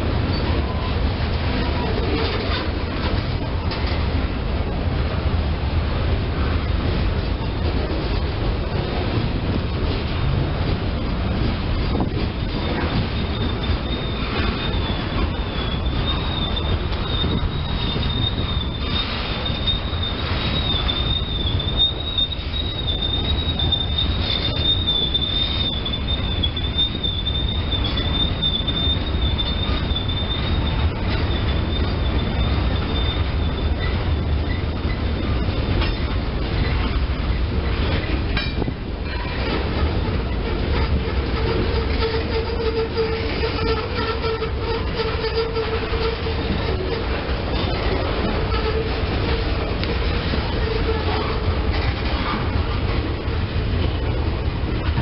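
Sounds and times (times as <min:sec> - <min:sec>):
wheels rumbling on rail: 0:00.0 - 0:55.0
high wavering wheel squeal: 0:11.8 - 0:54.1.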